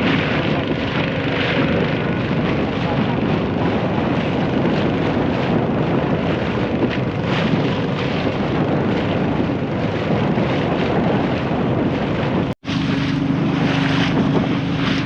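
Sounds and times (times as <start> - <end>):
boat engine running: 0.0 - 15.0
wind buffeting microphone: 0.0 - 15.0.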